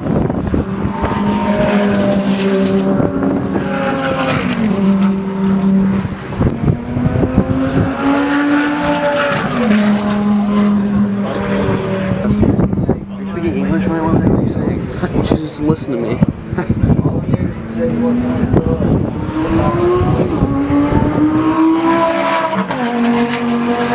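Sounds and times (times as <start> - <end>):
car engine revving: 0.0 - 23.9.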